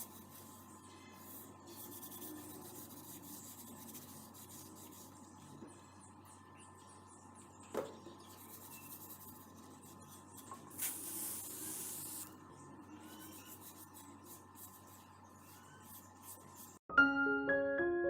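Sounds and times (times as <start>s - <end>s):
short hiss: 10.8s - 12.2s.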